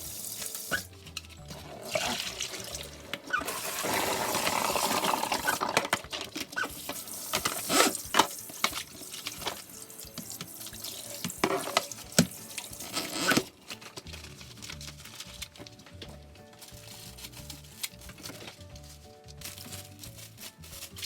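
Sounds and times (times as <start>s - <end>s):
tap water running into sink: 0.0s - 0.9s, 1.5s - 13.4s.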